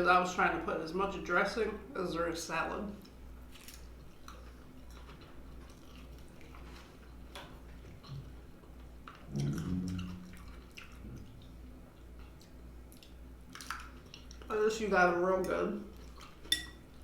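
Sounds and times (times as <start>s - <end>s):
chewing salad: 2.9s - 14.7s, 15.4s - 17.0s
person humming: 9.3s - 10.1s.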